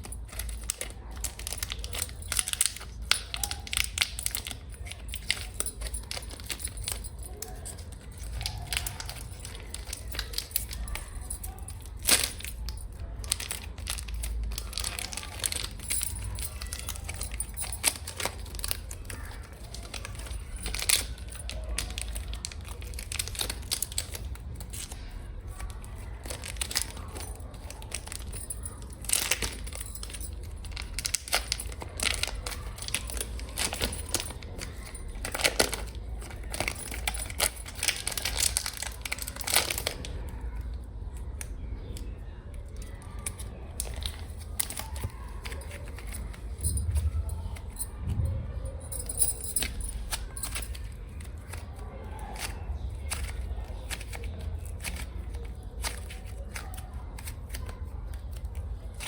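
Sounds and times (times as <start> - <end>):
fingernails tapping on packaging: 0.0 - 40.2.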